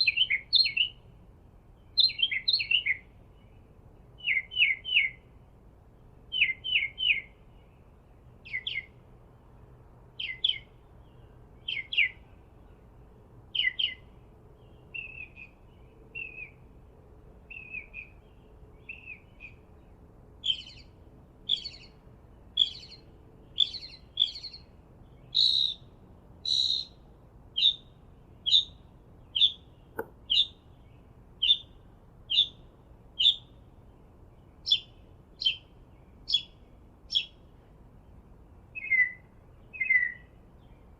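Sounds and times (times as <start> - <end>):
bird chirping: 0.0 - 5.4, 6.0 - 16.7, 17.4 - 40.9.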